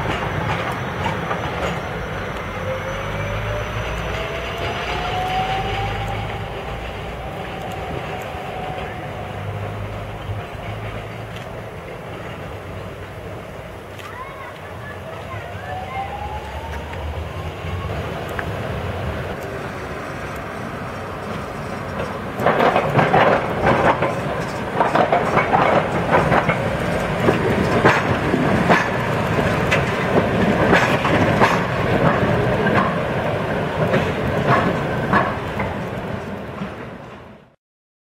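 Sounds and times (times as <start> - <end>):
tram clattering over rails: 0.0 - 37.6
tram wheels rumbling: 0.0 - 37.6.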